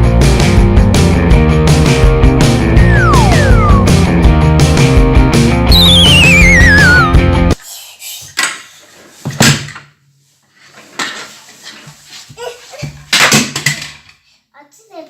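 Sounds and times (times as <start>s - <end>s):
toy cars clattering on hard surface: 13.0s - 14.2s.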